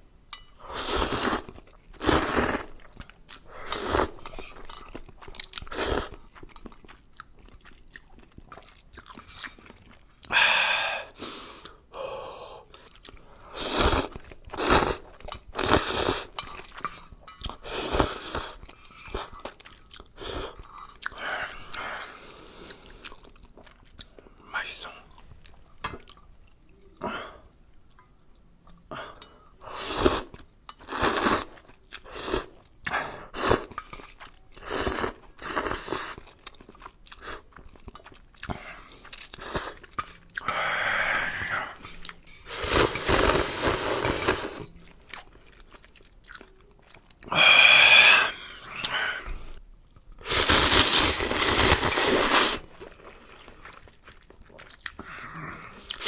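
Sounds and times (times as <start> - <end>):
slurping noodles: 0.6 - 4.7, 5.6 - 6.2, 12.9 - 23.2, 29.6 - 36.3, 38.4 - 44.7, 47.2 - 49.6, 50.2 - 54.0
chewing and biting noodles: 0.9 - 10.3, 29.9 - 40.6, 41.4 - 47.7, 49.9 - 55.1.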